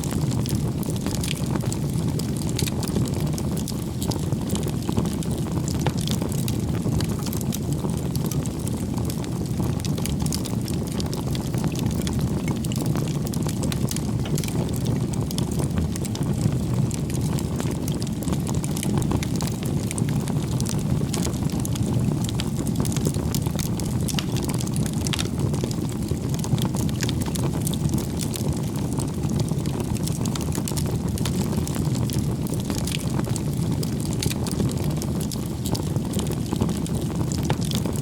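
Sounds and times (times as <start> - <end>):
bonfire flames rumbling: 0.0 - 38.0
fire crackling and popping: 0.0 - 38.0.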